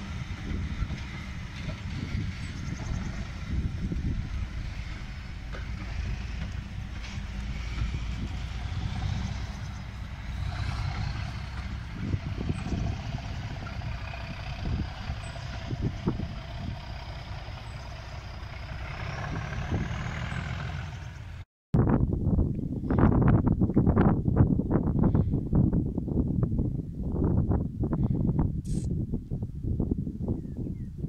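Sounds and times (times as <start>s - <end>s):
train rumbling: 0.0s - 21.4s.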